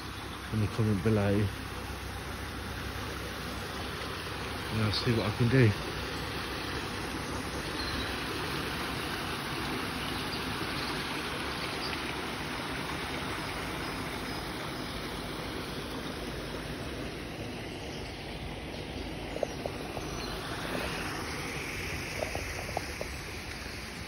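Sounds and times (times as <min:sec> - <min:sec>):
steady rushing noise: 0:15.3 - 0:24.0.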